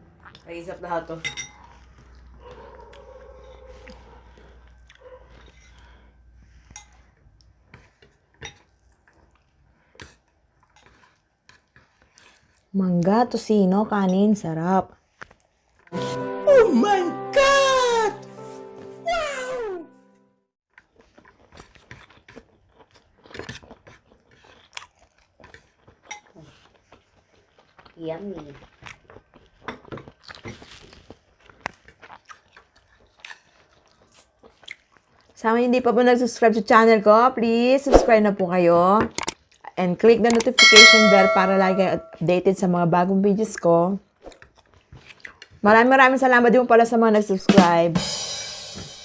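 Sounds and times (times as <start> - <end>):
utensils clinking on a plate: 1.2 - 1.6, 40.6 - 42.1
close-up chewing with wet crunches: 1.6 - 13.2, 20.7 - 35.4, 39.3 - 39.8, 44.0 - 45.6.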